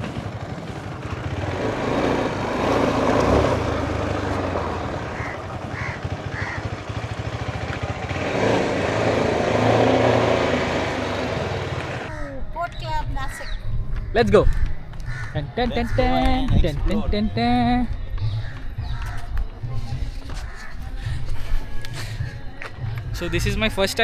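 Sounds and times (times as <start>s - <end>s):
motorcycle engine rumbling: 0.0s - 12.2s.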